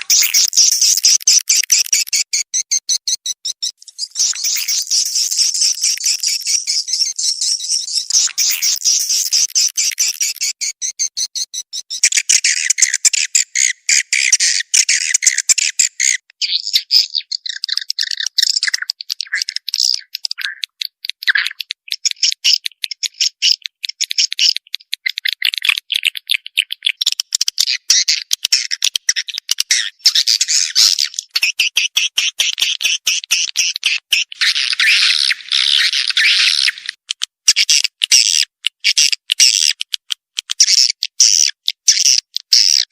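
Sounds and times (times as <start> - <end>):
swiftlet calls twittering: 0.0 - 13.9.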